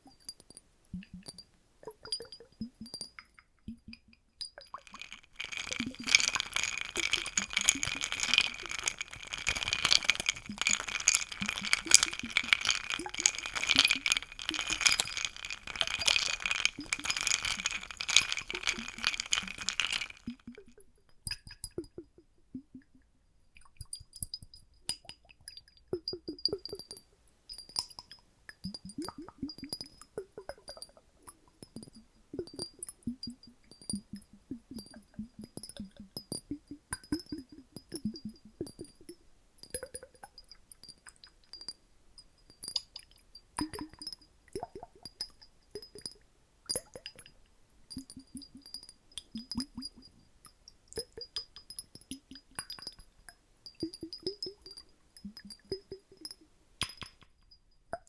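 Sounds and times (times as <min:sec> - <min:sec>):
water sloshing in glass bottles: 0:04.7 - 0:20.6, 0:42.6 - 0:57.2
glass bottles clinking: 0:04.9 - 0:20.4.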